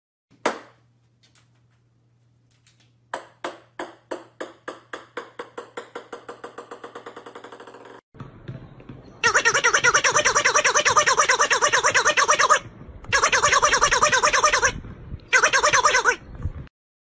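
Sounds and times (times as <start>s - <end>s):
ball bouncing on hardwood floor: 3.1s - 9.1s.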